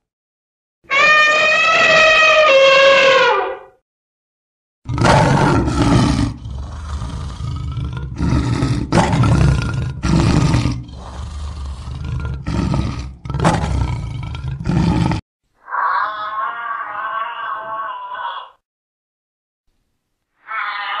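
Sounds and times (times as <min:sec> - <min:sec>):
lion roaring: 0:04.9 - 0:15.2.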